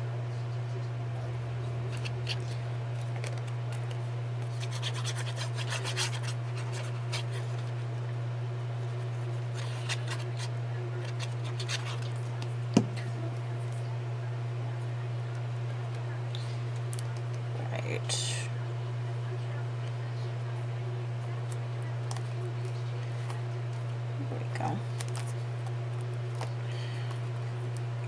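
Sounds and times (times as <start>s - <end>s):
steady low hum: 0.0s - 28.0s
paper scratching and rubbing: 4.4s - 7.8s, 8.8s - 12.2s.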